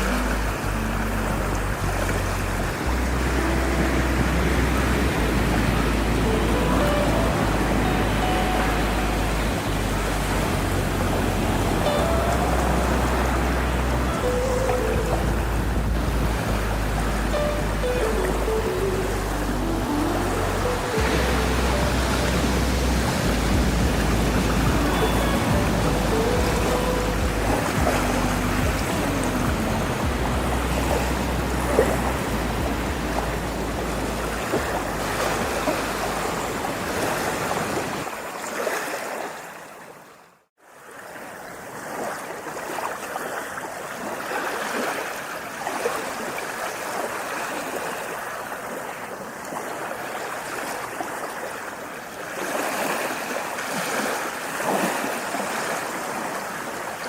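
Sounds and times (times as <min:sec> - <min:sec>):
ocean surf rumbling: 0:00.0 - 0:40.2
rushing water: 0:00.0 - 0:57.0.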